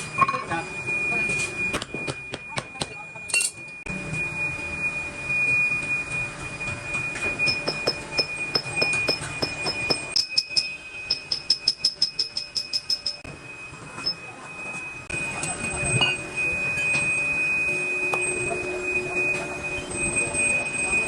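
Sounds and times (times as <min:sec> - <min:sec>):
ringing metallic ticks: 0:07.5 - 0:13.2.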